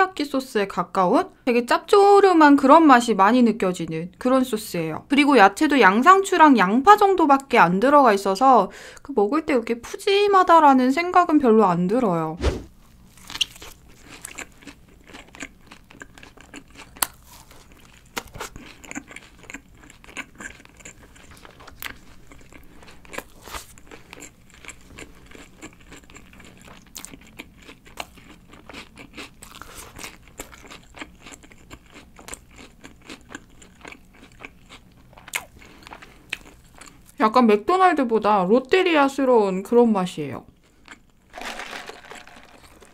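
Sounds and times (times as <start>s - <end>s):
burger being chewed: 13.0s - 37.2s.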